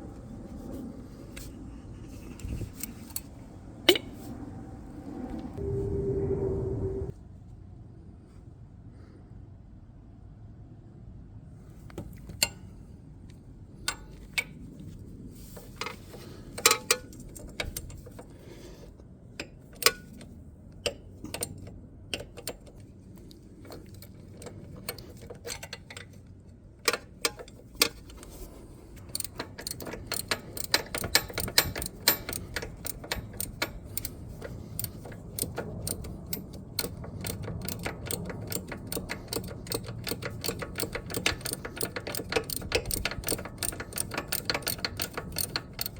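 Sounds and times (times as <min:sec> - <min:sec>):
ratchet wrench clicking: 0:13.9 - 0:18.4, 0:19.4 - 0:26.2, 0:26.8 - 0:45.9
metallic clinks of tools: 0:29.0 - 0:45.9.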